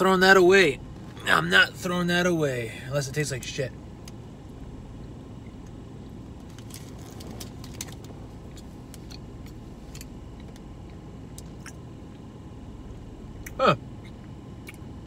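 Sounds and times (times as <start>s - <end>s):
low rumble in car cabin: 0.0s - 15.0s
man chewing: 6.6s - 12.3s, 13.4s - 14.9s.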